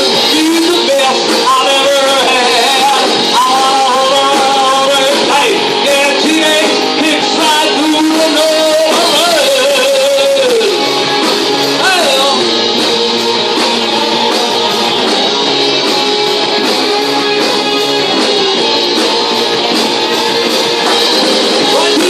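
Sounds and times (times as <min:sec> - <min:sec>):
electric guitar: 0:00.0 - 0:22.0
live rock band playing: 0:00.0 - 0:22.0
person singing: 0:00.0 - 0:22.0.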